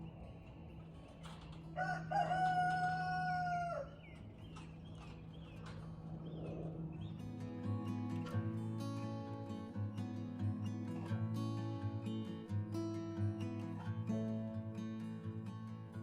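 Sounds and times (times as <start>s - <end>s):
small birds chirping: 0.0s - 16.0s
rooster crowing: 1.6s - 4.1s
acoustic guitar music: 4.0s - 16.0s.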